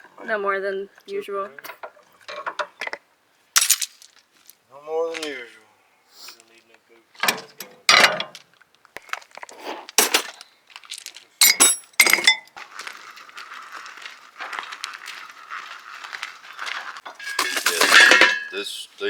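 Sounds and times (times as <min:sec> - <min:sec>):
metal tools clanking: 0:07.2 - 0:08.4, 0:11.0 - 0:12.5, 0:17.1 - 0:18.7.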